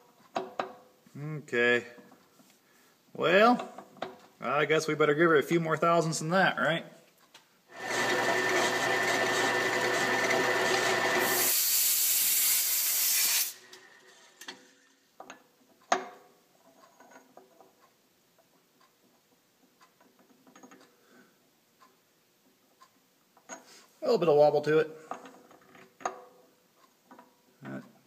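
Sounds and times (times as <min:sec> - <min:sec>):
machine tool boring steel: 0:07.7 - 0:14.1.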